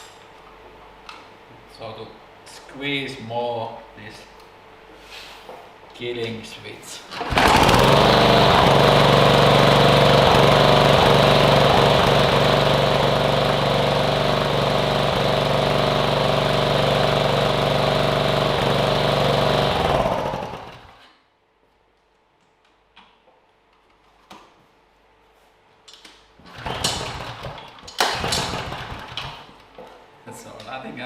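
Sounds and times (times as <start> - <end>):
lawn mower engine running: 7.1 - 21.0, 26.5 - 27.5, 28.1 - 29.2.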